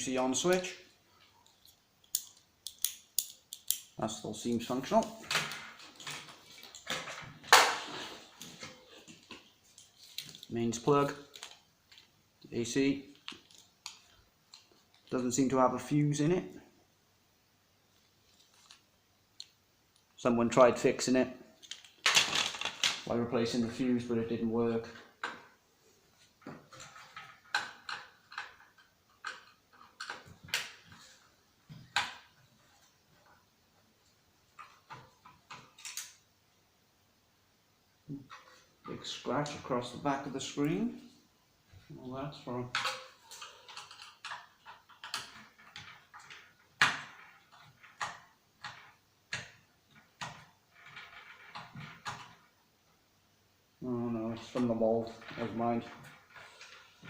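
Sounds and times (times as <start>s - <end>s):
plastic and metal parts clicking: 42.7s - 49.6s.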